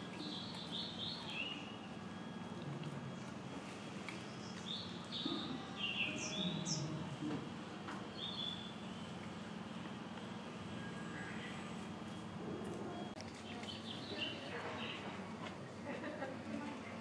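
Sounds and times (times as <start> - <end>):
small birds chirping: 0.0 - 2.3, 3.1 - 7.0, 8.1 - 9.8, 10.8 - 15.2
low background murmur: 0.0 - 17.0.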